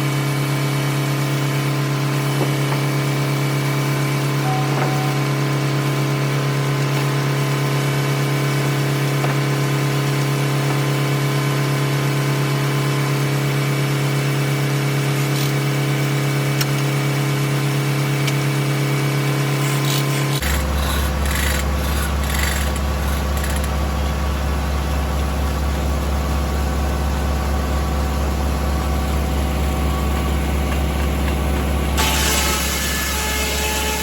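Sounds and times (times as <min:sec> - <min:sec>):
circular saw hum: 0:02.9 - 0:13.3, 0:19.7 - 0:34.0
tractor engine running: 0:20.2 - 0:32.0.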